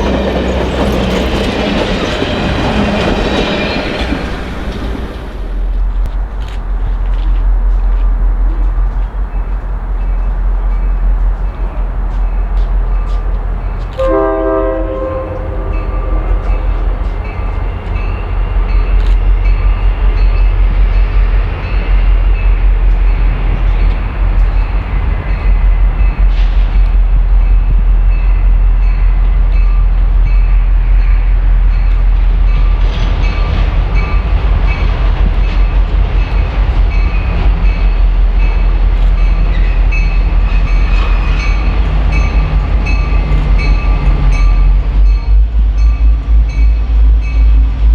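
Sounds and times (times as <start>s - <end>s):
train rumbling: 0.0s - 47.9s
train horn blast: 13.8s - 19.8s.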